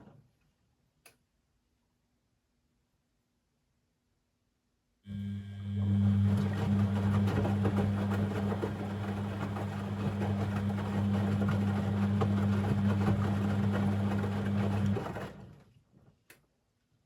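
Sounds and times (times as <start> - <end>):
washing machine running: 5.1 - 15.7.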